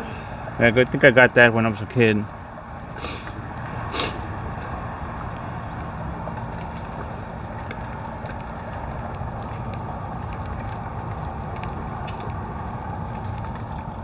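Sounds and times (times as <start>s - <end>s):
vehicle rumbling: 1.4s - 14.0s.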